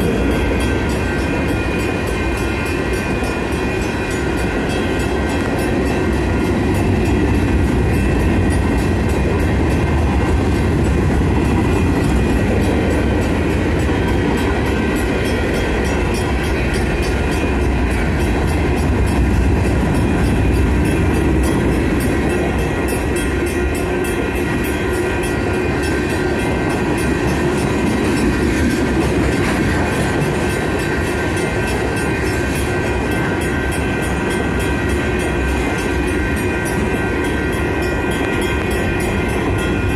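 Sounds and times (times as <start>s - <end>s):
crossing signal bells ringing: 0.0s - 39.9s
freight train wheels clacking: 0.0s - 39.9s.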